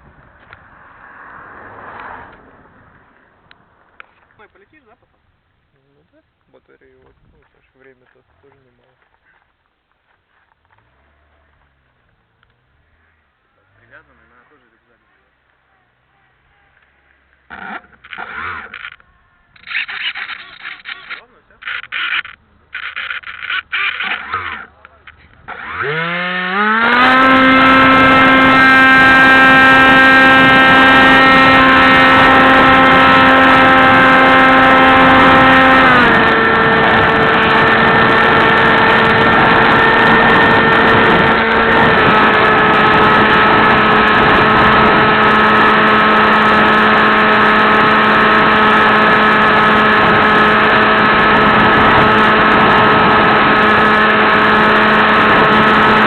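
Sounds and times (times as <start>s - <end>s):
model plane motor buzzing: 17.5s - 56.0s.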